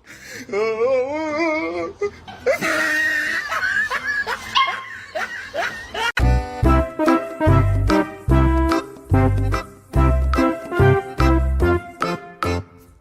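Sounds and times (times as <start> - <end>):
person laughing: 0.2 - 6.3
high wavering vocal sound: 0.4 - 2.2
music: 6.2 - 13.0.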